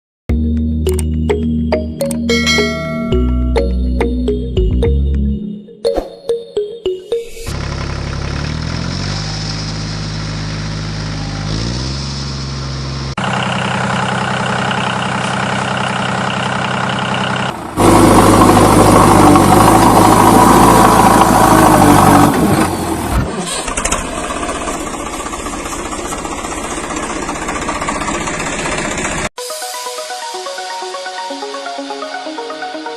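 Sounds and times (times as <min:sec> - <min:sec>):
engine revving: 0:07.5 - 0:29.3.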